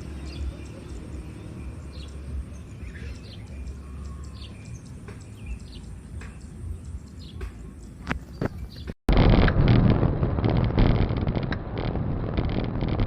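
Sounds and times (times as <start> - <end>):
birds chirping: 0.0 - 9.0
low rumble: 9.1 - 13.0.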